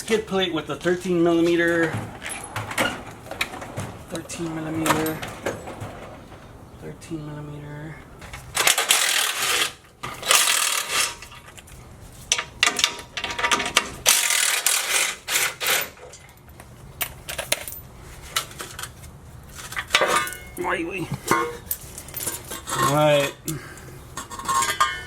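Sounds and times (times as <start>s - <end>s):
hand ratchet clicking: 14.1s - 15.5s.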